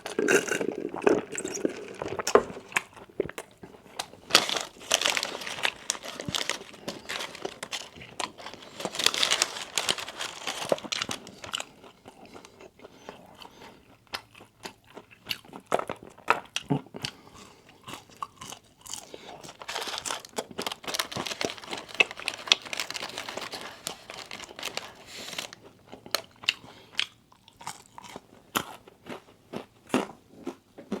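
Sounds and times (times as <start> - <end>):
person crunching and chewing food: 0.0 - 31.0.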